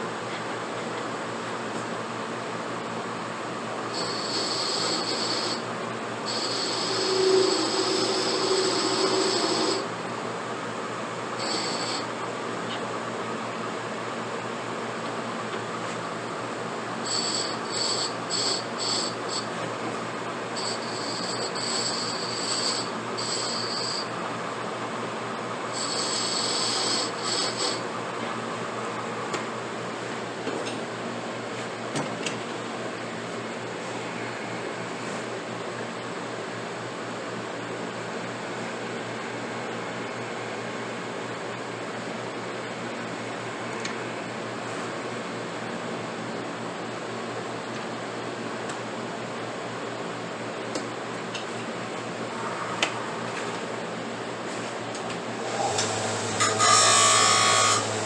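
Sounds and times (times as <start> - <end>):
steady machine hum: 0.0 - 58.0
pipe being filed: 3.9 - 5.6, 6.3 - 9.9, 11.4 - 12.1, 17.0 - 19.5, 20.6 - 24.1, 25.7 - 27.8, 55.8 - 58.0.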